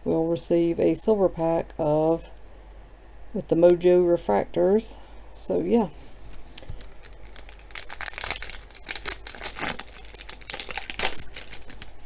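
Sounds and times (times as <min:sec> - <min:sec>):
wrapper being torn open and crinkled: 0:06.3 - 0:12.0.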